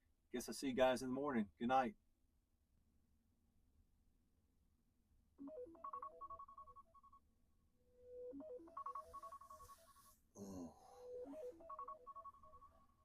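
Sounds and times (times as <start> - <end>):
faint phone ringtone jingle: 5.4 - 7.3, 7.9 - 13.0.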